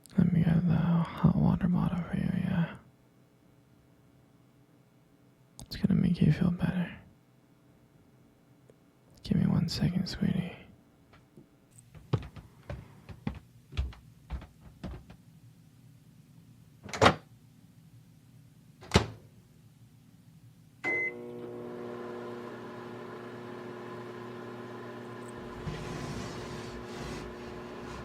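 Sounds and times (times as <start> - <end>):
microwave oven beep: 20.8 - 21.8
microwave oven humming: 20.8 - 28.0.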